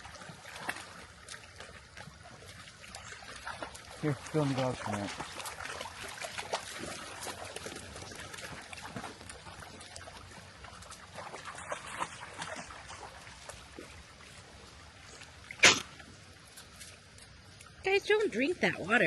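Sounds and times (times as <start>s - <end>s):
water trickling and lapping: 0.0s - 19.0s
loud sharp splash: 15.5s - 16.0s.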